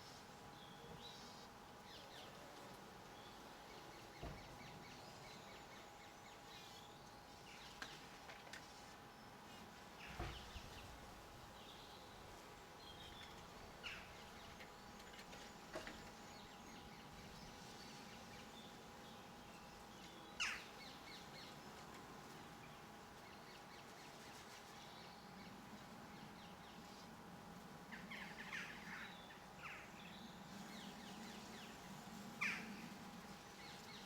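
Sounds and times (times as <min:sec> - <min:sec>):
faint birdsong and chirps: 0:00.0 - 0:34.0
sharp bird calls: 0:20.4 - 0:20.8.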